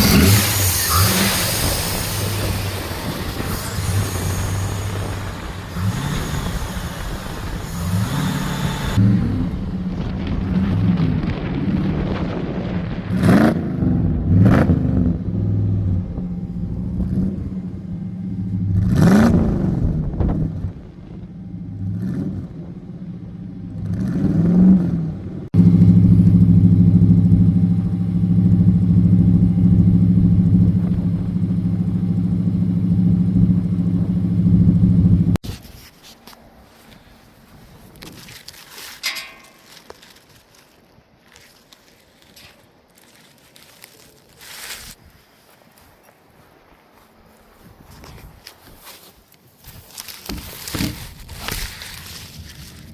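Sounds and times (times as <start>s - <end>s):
car engine idling and revving: 0.0s - 12.1s, 13.0s - 35.4s.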